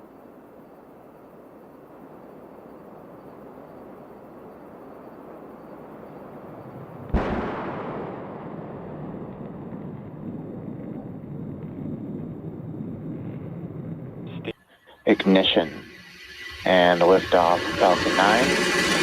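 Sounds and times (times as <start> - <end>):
distant rocket rumble: 4.4 - 19.0
loud crack: 7.1 - 10.3.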